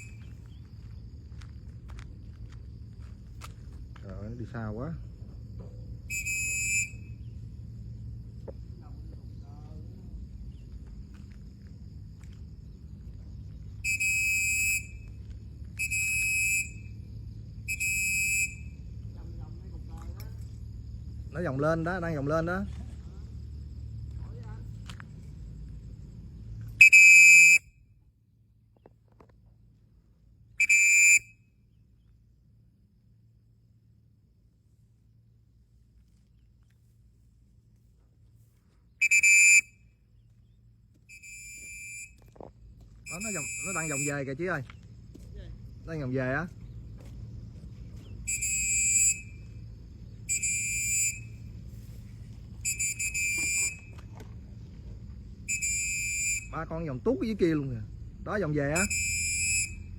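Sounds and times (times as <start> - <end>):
shrill whistle blasts: 0.0 - 0.5, 6.0 - 7.4, 13.8 - 17.0, 17.6 - 18.8, 26.8 - 27.8, 30.6 - 31.6, 39.0 - 40.0, 41.1 - 42.2, 43.0 - 44.4, 48.0 - 49.6, 50.2 - 51.5, 52.6 - 54.0, 55.4 - 56.8, 58.7 - 59.9.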